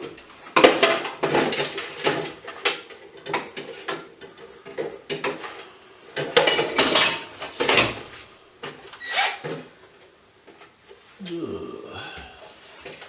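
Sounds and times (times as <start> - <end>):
metal tools clattering on workbench: 6.2 - 8.2.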